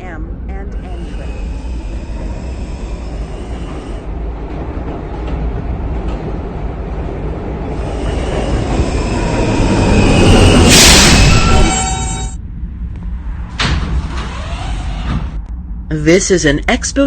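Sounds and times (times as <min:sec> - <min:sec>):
subway car rumbling on rails: 0:00.0 - 0:17.0
loud air hiss: 0:07.8 - 0:12.3
faint wheel squeal: 0:07.9 - 0:12.4.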